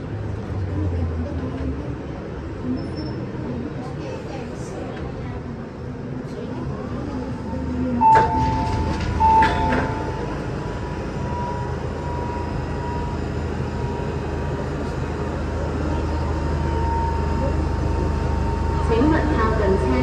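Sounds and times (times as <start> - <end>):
train hum: 3.6 - 20.0
electronic beeps: 8.0 - 10.5.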